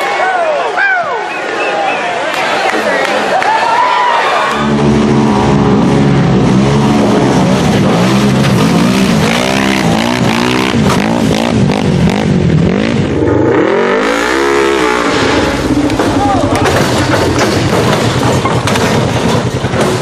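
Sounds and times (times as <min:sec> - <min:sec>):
off-road vehicle engine revving: 0:04.5 - 0:20.0.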